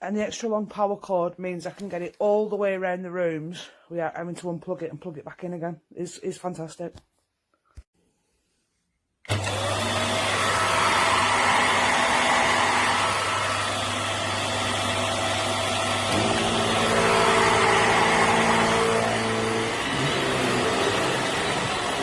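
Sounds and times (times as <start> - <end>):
vacuum cleaner running: 9.3 - 22.0.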